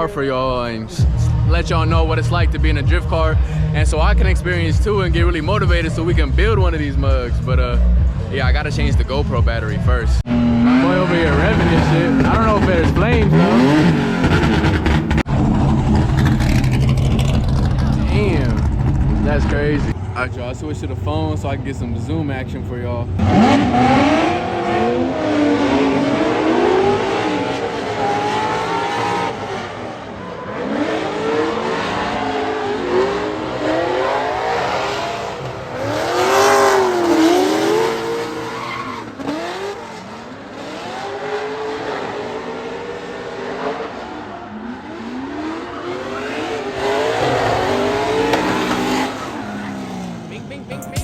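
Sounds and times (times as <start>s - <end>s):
car engines revving: 0.0s - 51.0s
tyre squeal: 38.4s - 39.4s.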